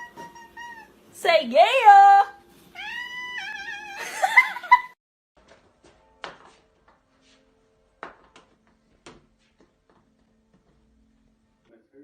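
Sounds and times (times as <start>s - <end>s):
cat meowing: 0.0s - 1.0s, 2.7s - 4.1s.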